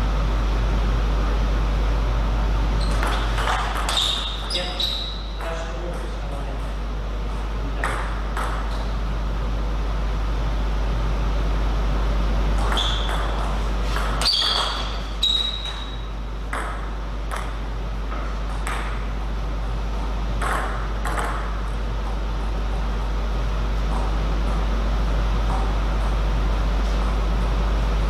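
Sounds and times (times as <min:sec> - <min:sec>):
steady low hum: 0:00.0 - 0:28.0
table tennis ball tapping: 0:02.9 - 0:04.5, 0:07.8 - 0:08.9, 0:12.6 - 0:15.9, 0:16.5 - 0:19.0, 0:20.4 - 0:21.8.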